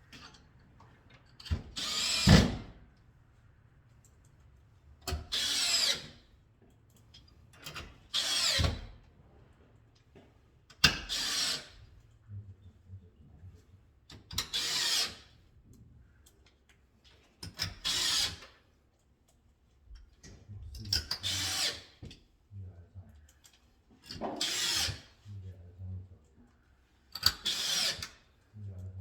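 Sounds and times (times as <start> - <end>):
electric drill driving screws: 1.8 - 2.5, 8.2 - 8.8, 11.1 - 11.7, 14.5 - 15.3, 17.8 - 18.4, 21.2 - 21.9, 24.4 - 25.1, 27.4 - 28.1.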